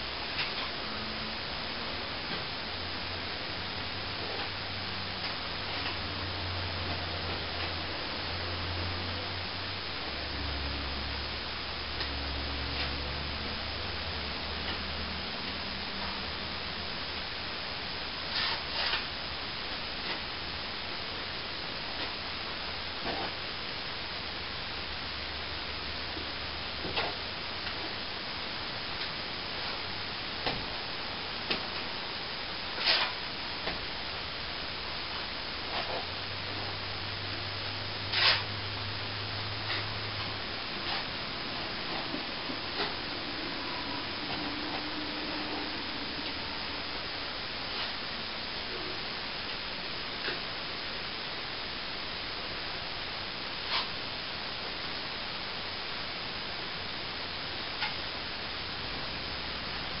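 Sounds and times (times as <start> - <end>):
low hum: 0.0 - 60.0
steady background hiss: 0.0 - 60.0.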